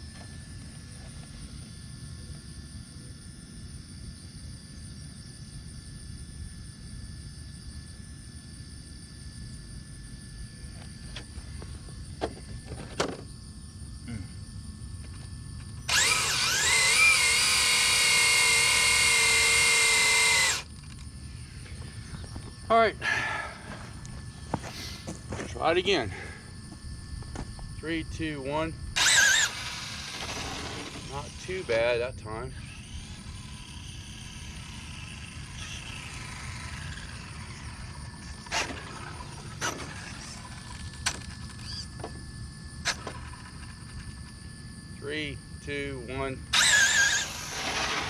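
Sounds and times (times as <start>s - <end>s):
outdoor background rumble: 0.0s - 48.0s
electric motor whining: 15.8s - 21.0s, 29.0s - 42.2s, 46.5s - 48.0s.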